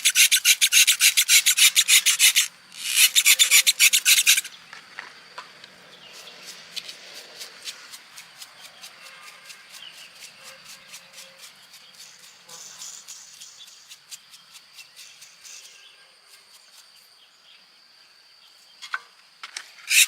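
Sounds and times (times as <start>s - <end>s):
hand tool rasping strokes: 0.0s - 4.5s, 6.1s - 15.8s.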